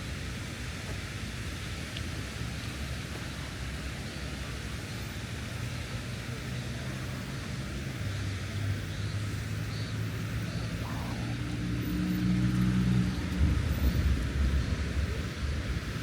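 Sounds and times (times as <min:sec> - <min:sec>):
vehicle engine humming: 0:03.1 - 0:16.0.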